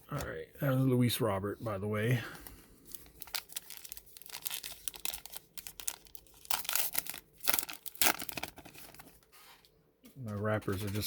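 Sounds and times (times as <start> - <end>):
card pack wrapper crinkling and tearing: 2.9 - 9.2.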